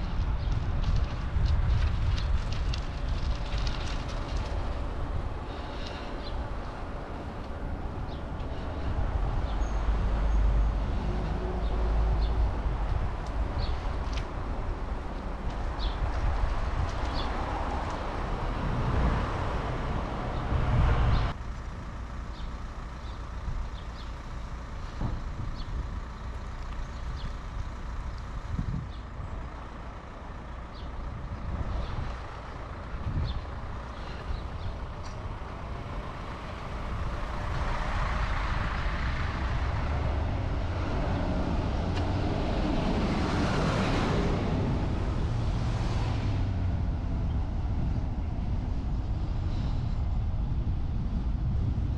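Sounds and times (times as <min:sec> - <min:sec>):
rumble of passing cars and trucks: 0:00.0 - 0:51.9
vehicle passing by: 0:02.1 - 0:21.4, 0:30.1 - 0:51.8.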